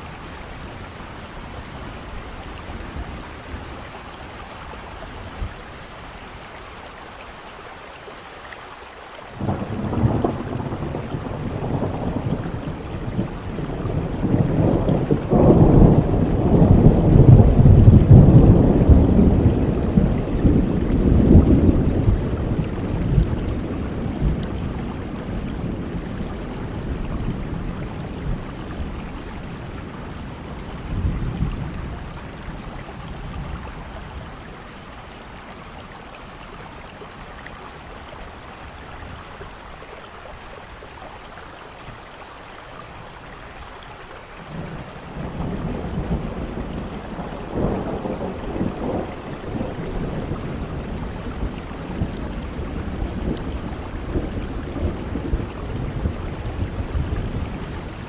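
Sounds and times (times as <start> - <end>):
steady rain: 0.0 - 58.0
thunder rolling: 9.4 - 29.0, 44.5 - 58.0.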